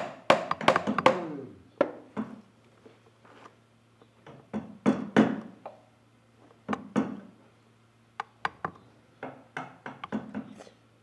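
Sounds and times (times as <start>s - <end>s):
carving tools knocking wood: 0.0s - 1.4s.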